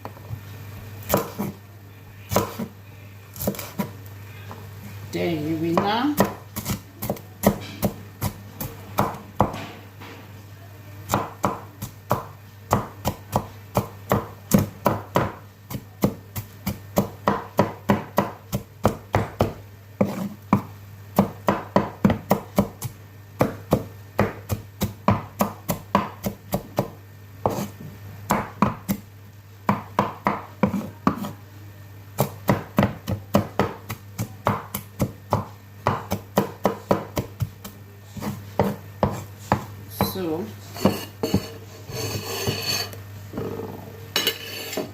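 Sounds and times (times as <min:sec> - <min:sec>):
knife chopping on cutting board: 0:01.1 - 0:01.6, 0:02.3 - 0:02.7, 0:03.4 - 0:03.9, 0:05.7 - 0:08.4, 0:11.1 - 0:22.8, 0:23.4 - 0:29.0, 0:29.7 - 0:31.4, 0:32.2 - 0:42.8.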